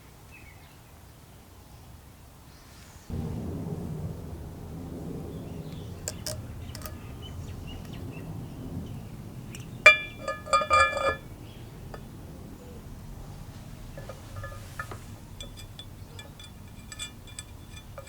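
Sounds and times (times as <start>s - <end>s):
metal parts clinking: 6.1s - 7.0s, 9.8s - 11.2s, 14.0s - 18.0s.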